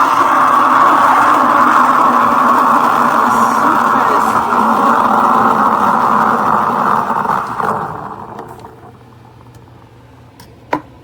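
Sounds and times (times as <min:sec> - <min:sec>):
steam wand hissing: 0:00.0 - 0:08.7.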